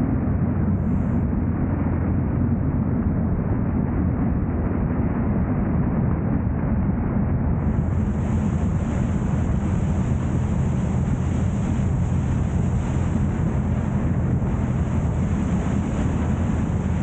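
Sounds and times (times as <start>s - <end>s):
wind noise: 0.0s - 17.0s
car engine: 7.6s - 17.0s
road noise: 7.6s - 17.0s.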